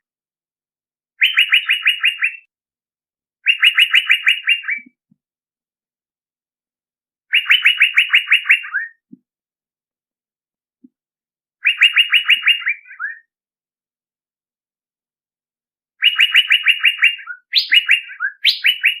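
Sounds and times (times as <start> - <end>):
bird call with sharp bright notes: 16.0 - 19.0.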